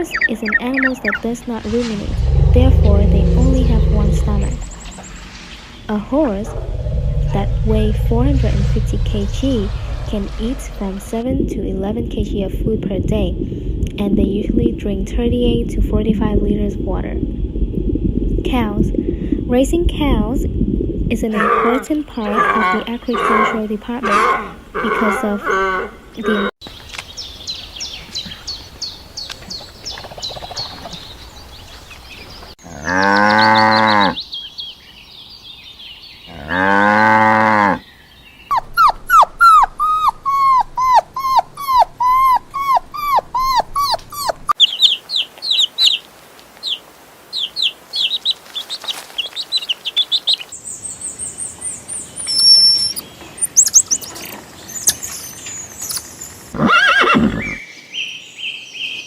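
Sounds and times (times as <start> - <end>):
high chirping calls: 0.0 - 1.2, 38.0 - 46.0, 46.6 - 56.4
cow mooing: 2.1 - 4.7.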